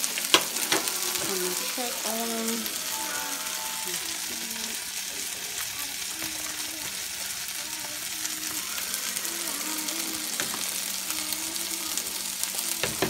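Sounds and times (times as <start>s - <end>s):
chicken sizzling in a skillet: 0.0s - 13.0s
pot boiling: 0.0s - 13.0s.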